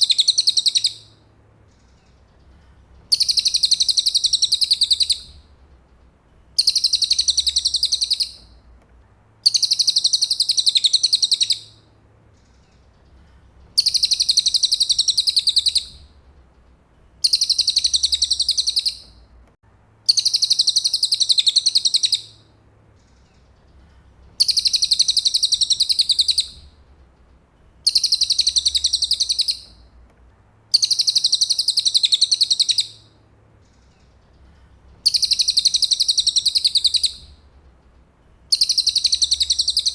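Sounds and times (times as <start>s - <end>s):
bird singing trilled phrases: 0.0s - 1.2s, 3.1s - 5.4s, 6.6s - 8.6s, 9.4s - 11.8s, 13.8s - 16.1s, 17.2s - 19.2s, 20.1s - 22.4s, 24.4s - 26.7s, 27.8s - 29.9s, 30.7s - 33.1s, 35.0s - 37.4s, 38.5s - 39.9s.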